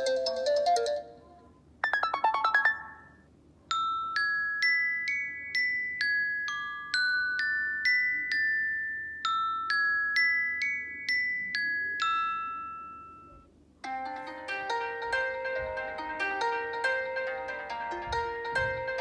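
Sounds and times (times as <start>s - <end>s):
phone ringtone tune: 1.8s - 3.2s
quick chiming notes: 1.8s - 3.2s
bell-like ringtone: 1.8s - 15.6s.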